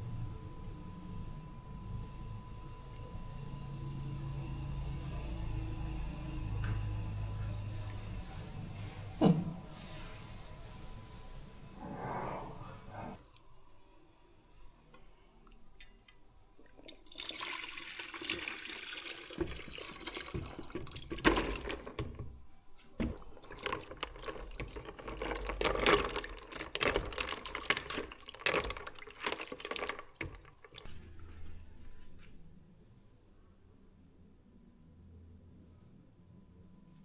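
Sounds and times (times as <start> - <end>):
tap water running and splashing: 16.6 - 22.4, 23.0 - 30.9.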